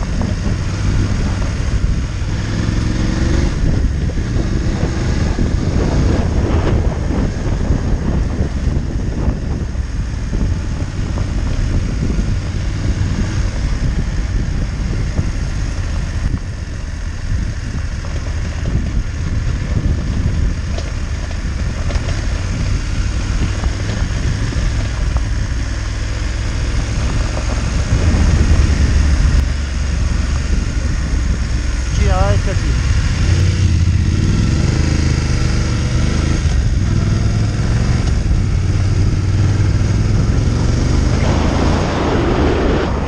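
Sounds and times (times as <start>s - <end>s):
motorcycle engine running: 0.0s - 43.0s
wind rumbling on microphone: 0.0s - 43.0s.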